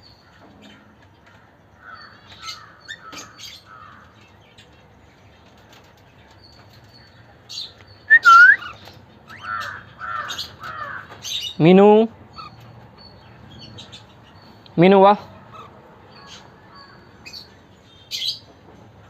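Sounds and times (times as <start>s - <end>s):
cockatiels chirping and whistling: 8.1s - 8.8s.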